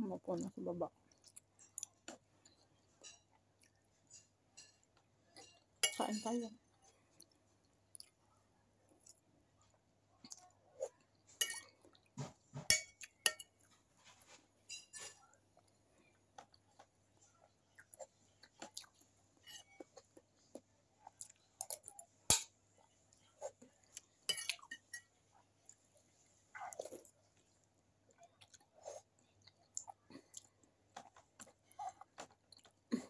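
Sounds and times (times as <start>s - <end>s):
person chewing food: 1.0s - 5.8s, 6.7s - 33.0s
metal spoon clinking on plate: 12.7s - 13.5s.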